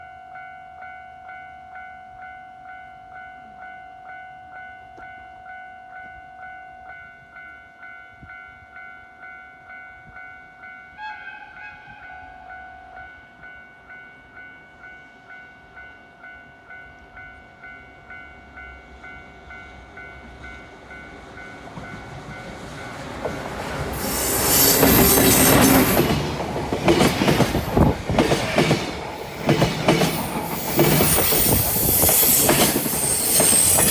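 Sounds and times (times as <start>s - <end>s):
train horn blast: 10.9s - 12.9s, 23.9s - 33.2s
freight train passing: 16.6s - 33.9s
train wheels clattering and squealing: 21.7s - 33.9s
level crossing warning bell: 23.9s - 33.9s.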